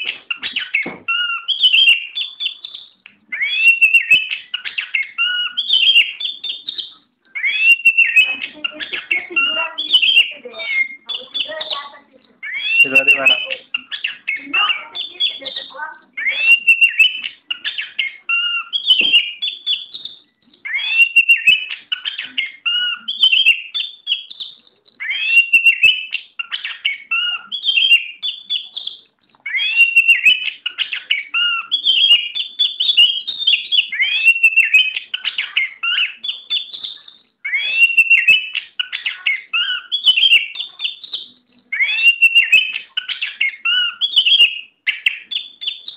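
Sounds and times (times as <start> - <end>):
magpie-robin singing: 0.0 - 45.9.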